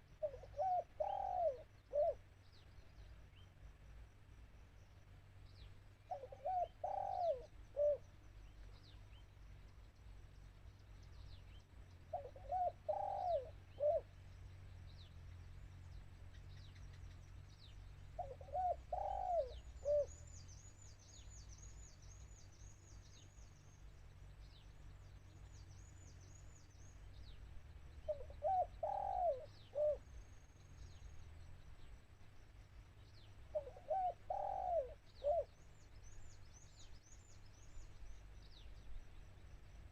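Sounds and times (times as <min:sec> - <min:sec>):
small birds chirping: 0:00.0 - 0:39.9
dove cooing: 0:00.2 - 0:02.2, 0:06.1 - 0:08.1, 0:12.1 - 0:14.1, 0:18.2 - 0:20.2, 0:28.0 - 0:30.1, 0:33.5 - 0:35.6.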